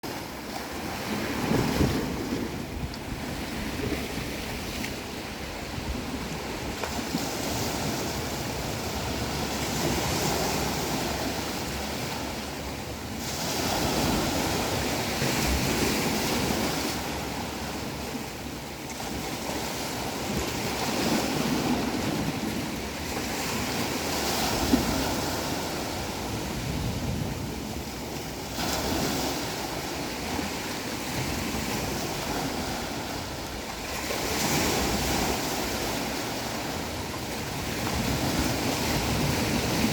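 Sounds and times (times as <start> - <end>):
ocean waves breaking: 0.0 - 39.9
wind: 0.0 - 39.9.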